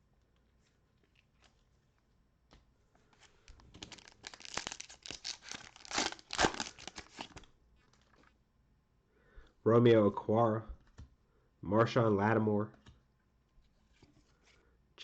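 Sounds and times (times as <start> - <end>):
plastic wrapper tearing and crinkling: 3.6 - 8.2.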